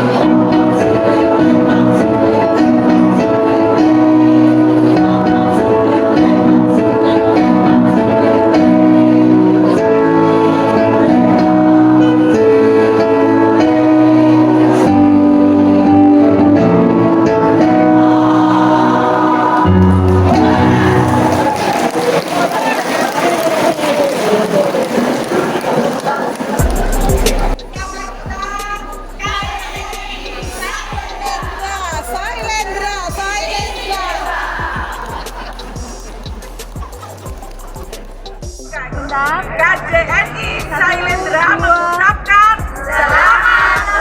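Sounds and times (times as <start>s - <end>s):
choir singing held chords: 0.0s - 22.4s, 26.6s - 41.5s, 42.6s - 44.0s
deep bass note: 26.6s - 33.8s.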